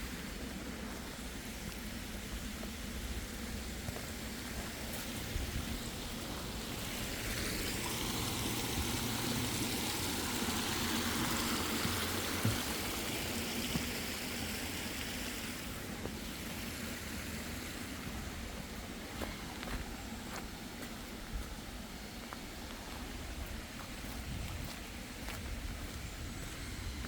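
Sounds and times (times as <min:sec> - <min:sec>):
car tyres hissing on wet road: 0:00.0 - 0:27.0.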